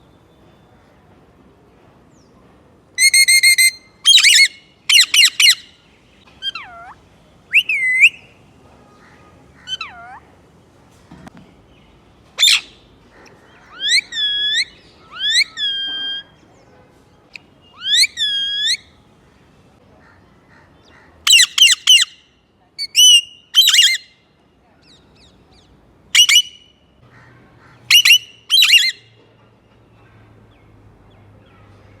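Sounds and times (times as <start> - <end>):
parrot chirps: 3.0 - 5.7, 6.4 - 8.2, 9.6 - 10.2, 12.4 - 12.8, 13.6 - 16.4, 17.3 - 18.8, 21.3 - 22.1, 22.8 - 24.0, 26.2 - 26.6, 27.9 - 29.0
parrot squawks: 3.0 - 5.7, 6.4 - 8.2, 9.6 - 10.3, 12.4 - 12.8, 13.6 - 16.4, 17.8 - 18.8, 21.2 - 22.1, 22.8 - 24.0, 26.2 - 26.6, 27.6 - 29.0
parrot whistled calls: 3.0 - 5.7, 6.4 - 8.3, 9.7 - 10.2, 12.4 - 12.8, 13.7 - 16.4, 17.7 - 18.9, 22.8 - 24.0, 26.2 - 26.6, 27.9 - 29.0.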